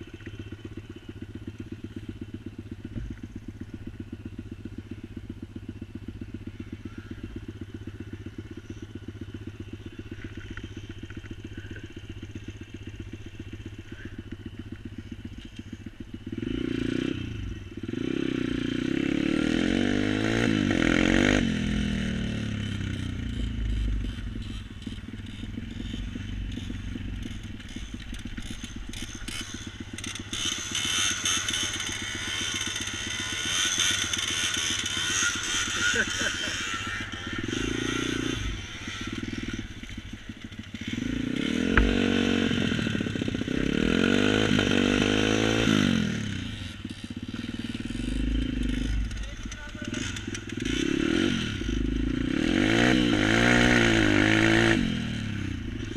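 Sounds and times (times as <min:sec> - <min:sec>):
engine idling: 0:00.0 - 0:19.0, 0:21.4 - 0:53.5
loud engine revving: 0:16.3 - 0:27.8, 0:28.4 - 0:39.7, 0:40.7 - 0:55.9.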